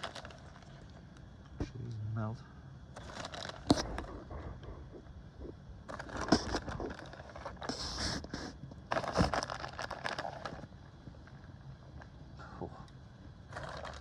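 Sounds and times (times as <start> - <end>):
utensil scraping: 3.6 - 9.3
packaging crinkling: 8.0 - 10.7.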